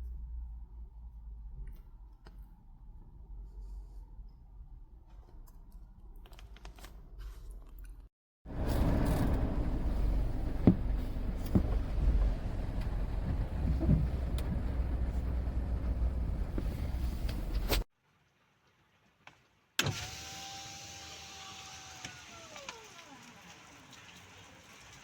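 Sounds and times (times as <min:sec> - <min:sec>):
car engine and road rumble: 0:08.5 - 0:17.9.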